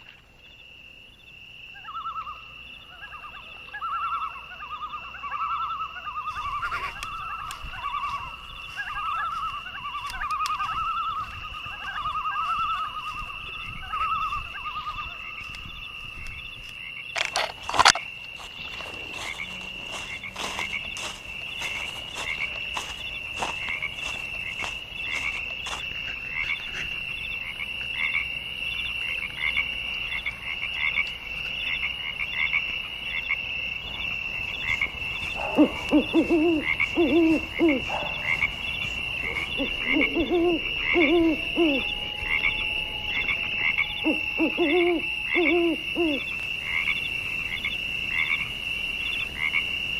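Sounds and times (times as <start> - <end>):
frogs croaking: 0.0 - 49.9
frogs trilling: 0.0 - 49.9
sharp clicks: 16.2 - 18.1.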